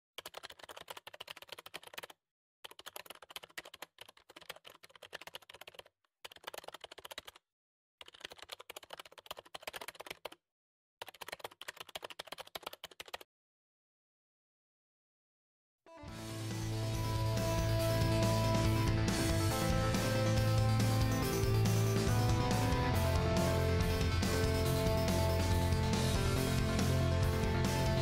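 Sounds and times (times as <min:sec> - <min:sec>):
rapid keyboard key clicks: 0:00.2 - 0:07.4, 0:08.0 - 0:10.4, 0:11.0 - 0:13.2.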